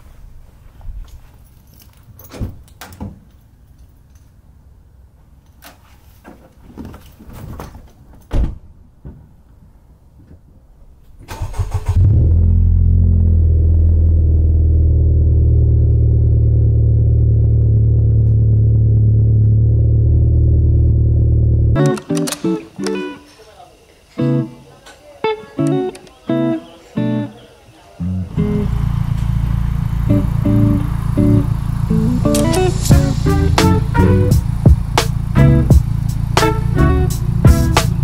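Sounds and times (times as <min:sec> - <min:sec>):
car engine starting and idling: 0:11.1 - 0:22.4, 0:28.0 - 0:38.0.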